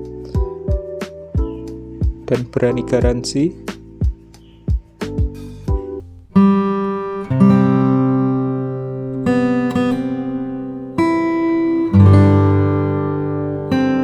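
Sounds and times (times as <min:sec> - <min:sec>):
acoustic guitar chords strummed: 0:06.0 - 0:14.0.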